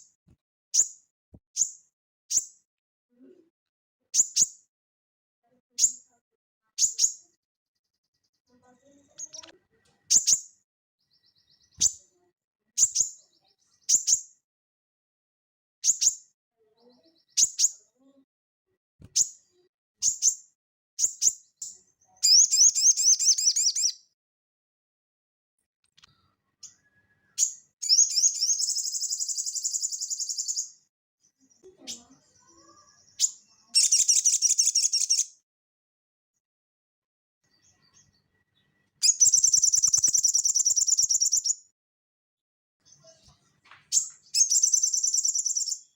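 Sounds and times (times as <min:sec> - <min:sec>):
songbird chirping and trilling: 0:00.8 - 0:02.7, 0:04.0 - 0:04.7, 0:05.5 - 0:14.5, 0:15.8 - 0:18.3, 0:19.0 - 0:24.2, 0:25.8 - 0:35.4, 0:37.4 - 0:41.7, 0:42.8 - 0:45.9.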